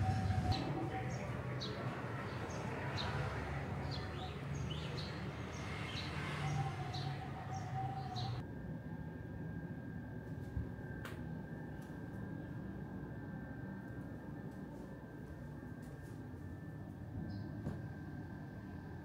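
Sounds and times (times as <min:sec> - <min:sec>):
low steady rumble: 0:00.0 - 0:02.2
small birds chirping: 0:00.0 - 0:08.4.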